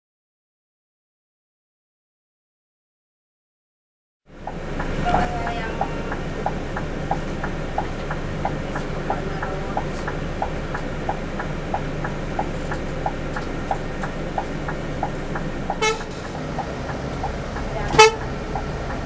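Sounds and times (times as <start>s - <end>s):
coach engine and road rumble: 4.3s - 19.0s
sharp regular clicking: 6.1s - 19.0s.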